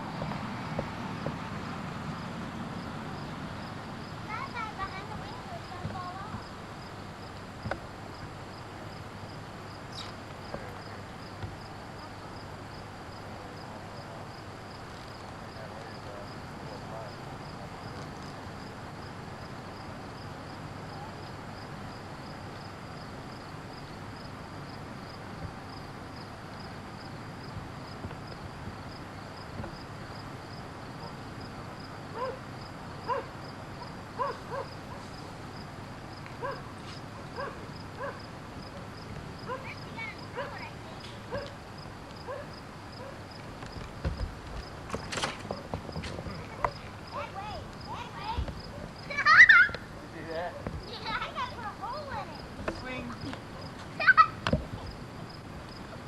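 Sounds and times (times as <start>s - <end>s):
insect chirping: 0.0s - 56.0s
dog barking: 31.0s - 31.2s, 32.2s - 32.4s, 33.1s - 35.1s, 36.4s - 36.7s, 37.3s - 38.3s, 39.5s - 40.7s, 41.3s - 41.6s, 42.3s - 43.2s.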